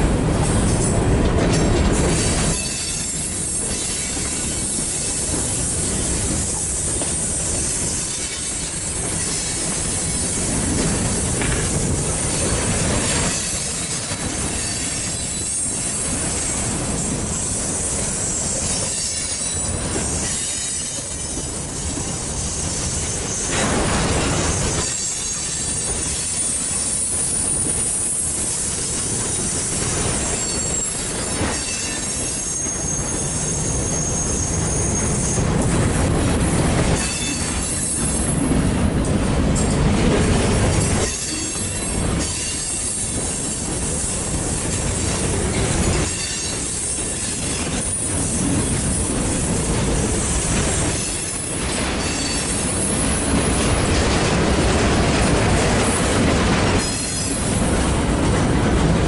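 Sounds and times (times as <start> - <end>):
wheels clacking over rail joints: 0.0 - 34.2, 34.9 - 59.0
train wheels rumbling on rail: 0.0 - 59.0
high-pitched wheel squeal: 30.4 - 35.4.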